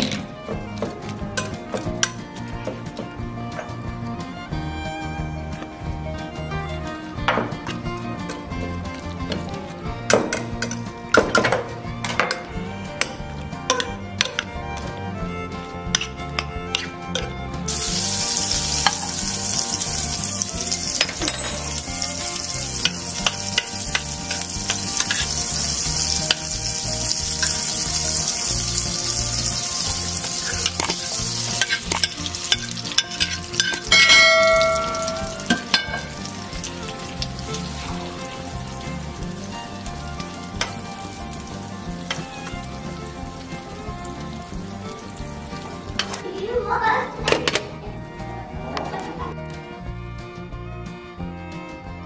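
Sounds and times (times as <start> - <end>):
food sizzling in a frying pan: 17.7 - 46.2
spoon clicking against pan: 31.6 - 34.2.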